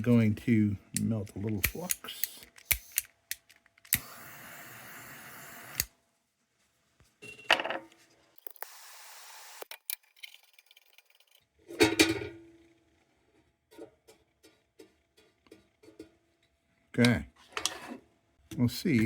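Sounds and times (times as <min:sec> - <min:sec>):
torch click: 0:01.0 - 0:05.9
gas torch hissing: 0:01.6 - 0:03.0, 0:03.9 - 0:05.9, 0:08.4 - 0:09.6.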